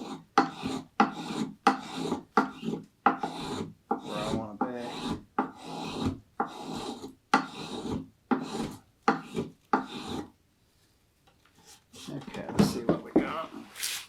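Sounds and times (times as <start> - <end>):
hand tool scraping wood: 0.0 - 10.3, 13.2 - 14.0.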